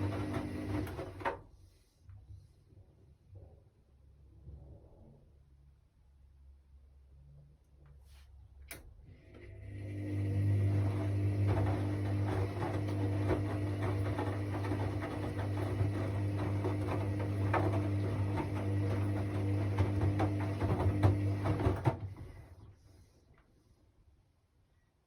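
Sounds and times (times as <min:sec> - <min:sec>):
washing machine clicking and rattling: 0:00.0 - 0:01.4, 0:10.1 - 0:22.6
washing machine motor hum: 0:00.0 - 0:01.4, 0:09.0 - 0:23.2.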